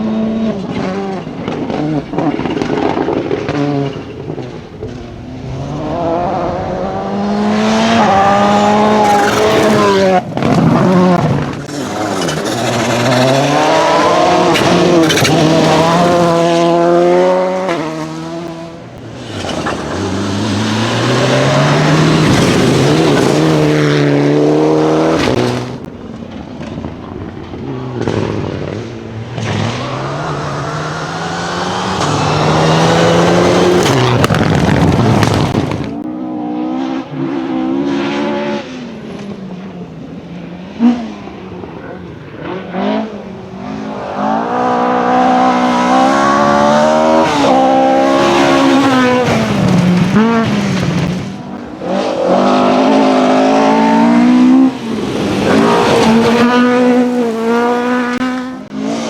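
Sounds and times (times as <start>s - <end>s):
rally car engine revving: 0.0s - 59.0s
tyres on loose gravel: 9.0s - 16.4s, 33.2s - 36.0s.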